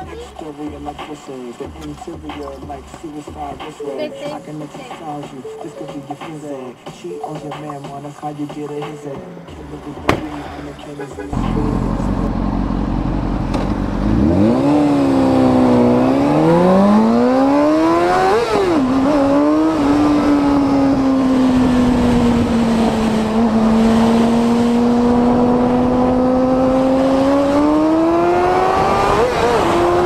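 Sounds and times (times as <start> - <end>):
motorcycle engine accelerating: 9.7 - 30.0.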